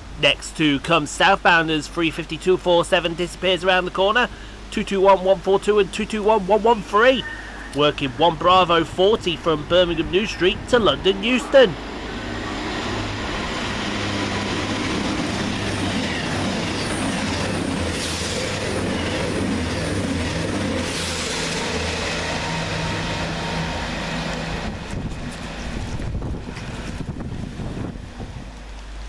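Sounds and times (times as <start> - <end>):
diesel engines droning: 0.0 - 29.0
train wheels rushing on rails: 10.9 - 29.0.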